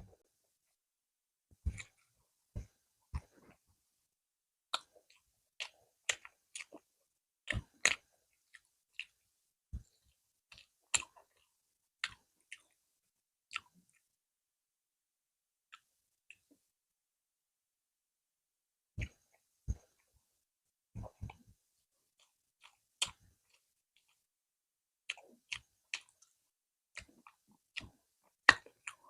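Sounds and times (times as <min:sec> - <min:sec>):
chewing: 0:01.6 - 0:03.6, 0:04.7 - 0:06.9, 0:07.5 - 0:09.2, 0:09.8 - 0:12.8, 0:13.5 - 0:14.1, 0:22.2 - 0:24.2, 0:25.1 - 0:29.0.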